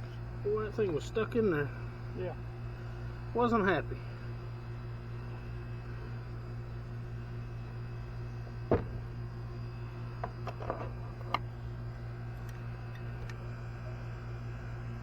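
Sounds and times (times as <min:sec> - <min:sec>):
low hum: 0:01.7 - 0:15.0
sharp knock: 0:08.7 - 0:09.1.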